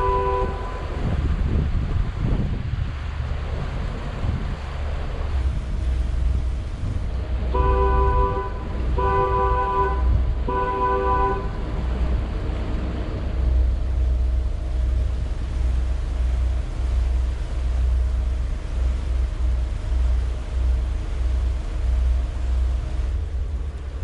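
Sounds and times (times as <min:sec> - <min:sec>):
two-tone boat horn blasts: 0:00.0 - 0:01.1, 0:07.4 - 0:11.9
steady low rumble: 0:00.0 - 0:24.0.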